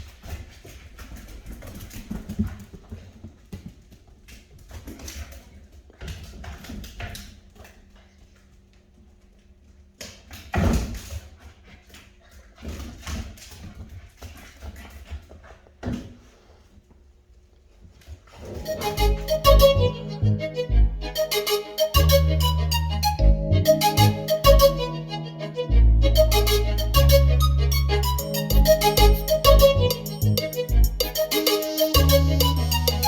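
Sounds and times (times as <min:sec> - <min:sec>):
paws scrabbling on hard floor: 0:00.0 - 0:09.4.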